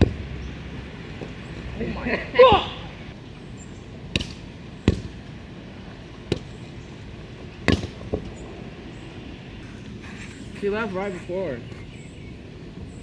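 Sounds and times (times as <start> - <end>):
volleyball being struck: 0.0 - 3.2, 4.1 - 5.2, 7.7 - 8.3.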